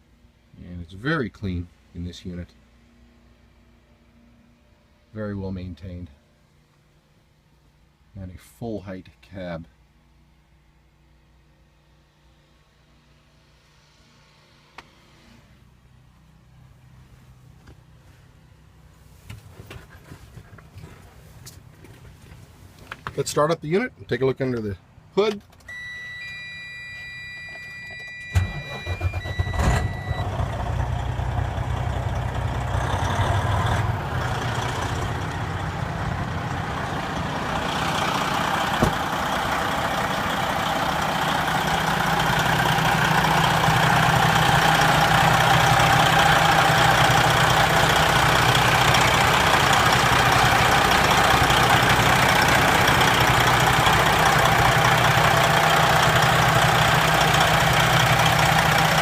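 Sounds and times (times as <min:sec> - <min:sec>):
diesel truck engine starting and idling: 0:25.6 - 0:59.0.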